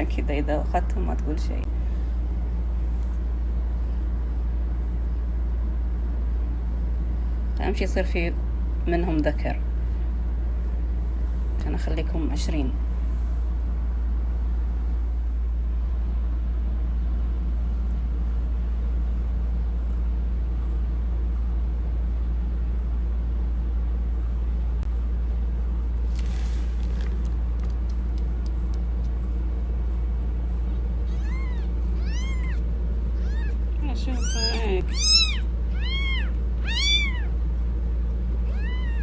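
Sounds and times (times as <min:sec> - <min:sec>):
low hum: 0:00.0 - 0:39.0
kittens mewing: 0:31.0 - 0:37.4, 0:38.4 - 0:39.0.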